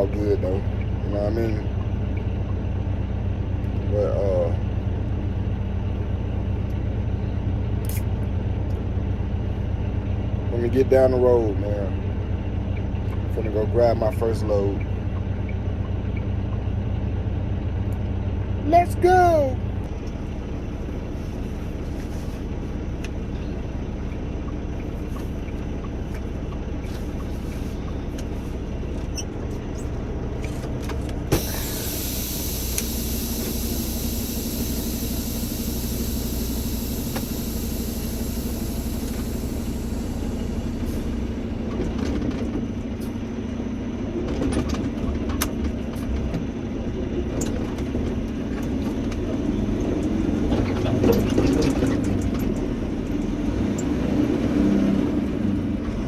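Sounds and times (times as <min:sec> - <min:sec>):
steady engine tone: 0:00.0 - 0:56.0
truck engine running: 0:00.0 - 0:56.0
high hiss: 0:31.4 - 0:41.4
click: 0:32.7 - 0:33.6.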